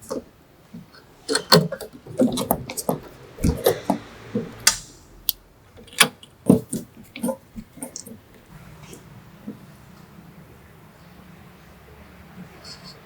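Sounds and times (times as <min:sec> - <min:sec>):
hard objects clicking and knocking: 0:00.0 - 0:04.9.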